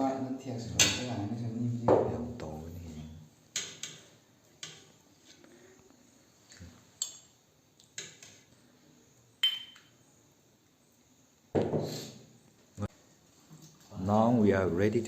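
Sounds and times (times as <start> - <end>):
dishes and cutlery clinking: 0.8 - 1.2, 6.9 - 8.4, 9.4 - 10.0.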